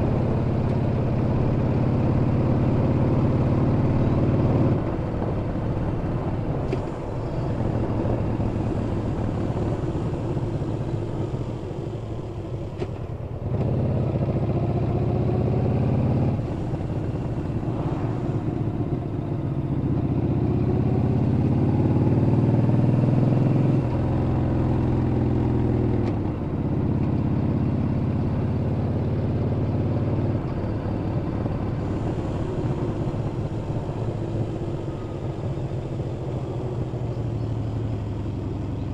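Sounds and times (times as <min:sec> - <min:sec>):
motorcycle engine revving: 0:13.4 - 0:38.9.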